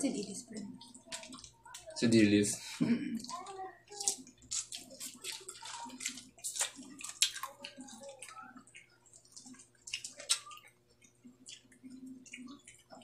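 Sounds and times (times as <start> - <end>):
people chewing: 0.0 - 13.0
wet mouth smacks: 9.4 - 10.6.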